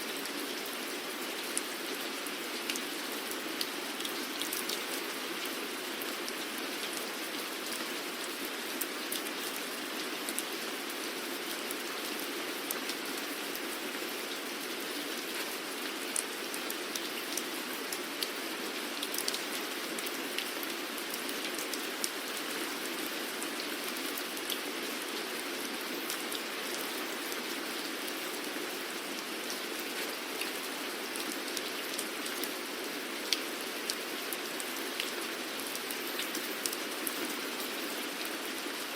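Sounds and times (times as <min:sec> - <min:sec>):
steady rain hiss: 0:00.0 - 0:38.9
raindrops ticking on surface: 0:15.4 - 0:22.5.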